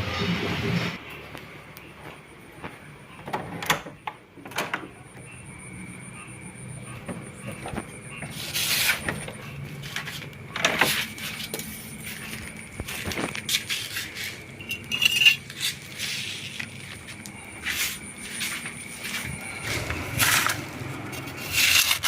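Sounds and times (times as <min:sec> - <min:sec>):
small hard objects clinking: 0:11.4 - 0:18.0.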